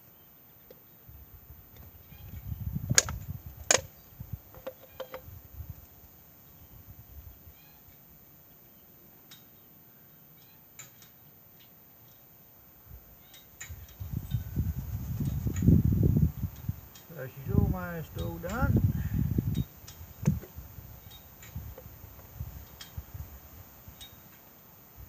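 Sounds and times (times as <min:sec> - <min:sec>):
faint ticks: 0:24.0 - 0:24.5.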